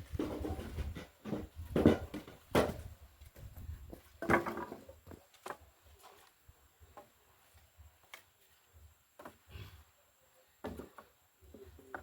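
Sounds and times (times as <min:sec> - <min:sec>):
wood knocking and clattering: 0:00.0 - 0:05.6.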